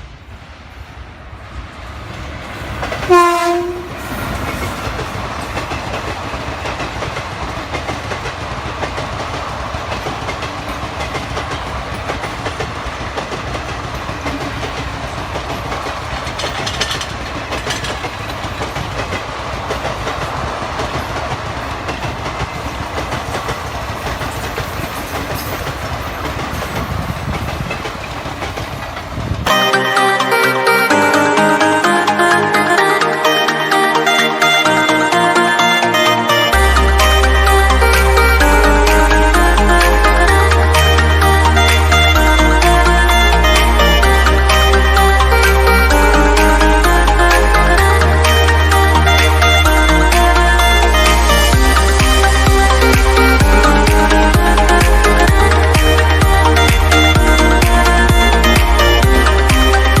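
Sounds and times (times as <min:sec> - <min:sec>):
train wheels clattering over rails: 0:02.0 - 0:29.5
train horn: 0:03.0 - 0:04.5.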